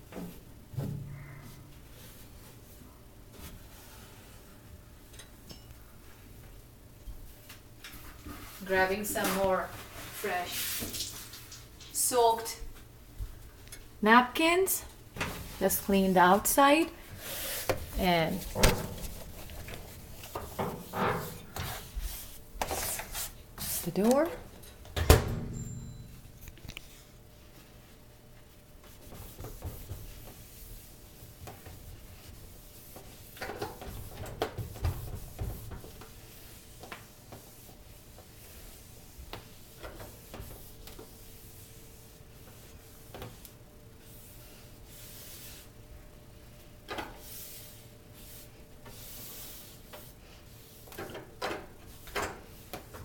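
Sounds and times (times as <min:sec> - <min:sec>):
paper towels wiping microwave: 0:08.0 - 0:12.2, 0:15.3 - 0:24.3, 0:26.9 - 0:53.0.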